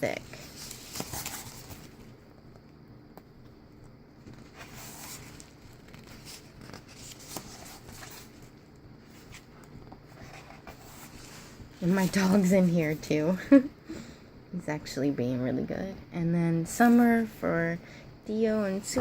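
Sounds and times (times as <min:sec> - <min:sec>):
electric fans humming: 0:00.0 - 0:19.0
book pages turning: 0:00.3 - 0:02.2, 0:04.2 - 0:12.7.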